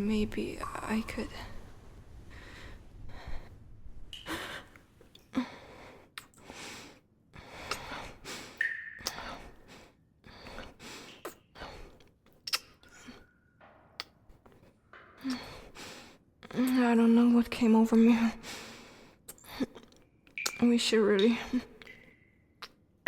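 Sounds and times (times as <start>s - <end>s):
breaths and small gasps: 4.2s - 13.4s, 14.5s - 16.8s, 18.3s - 20.1s
lip smacks from kissing: 12.3s - 13.2s.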